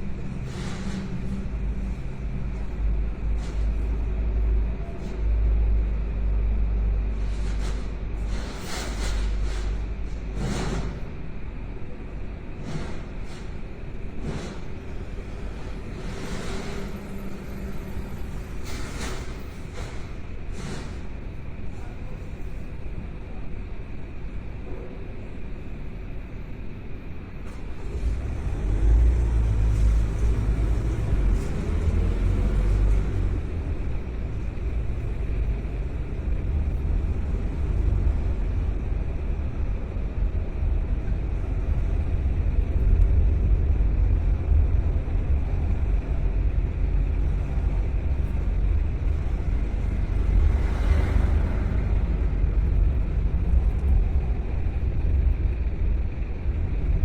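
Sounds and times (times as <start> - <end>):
car engine rumble: 0.0 - 57.0
road noise: 0.0 - 57.0
hiss: 0.2 - 2.1, 7.1 - 11.1, 15.5 - 21.1.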